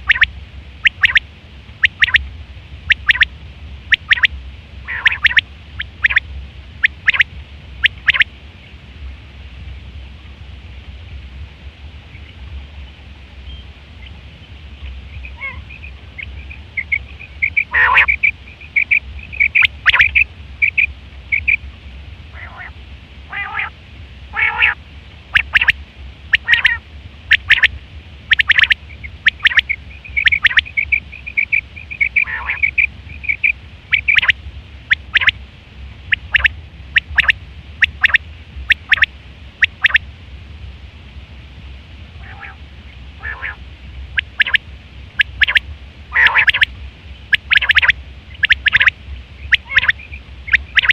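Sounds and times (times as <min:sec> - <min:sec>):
quail chirping: 0:00.0 - 0:01.2, 0:01.8 - 0:02.2, 0:02.9 - 0:03.3, 0:03.9 - 0:04.3, 0:04.9 - 0:06.2, 0:06.8 - 0:08.3, 0:14.8 - 0:21.6, 0:22.4 - 0:22.7, 0:23.3 - 0:23.7, 0:24.4 - 0:27.7, 0:28.3 - 0:35.4, 0:36.1 - 0:40.0, 0:42.2 - 0:42.6, 0:43.2 - 0:43.6, 0:44.2 - 0:44.6, 0:45.2 - 0:50.9
steady low hum: 0:00.0 - 0:50.9.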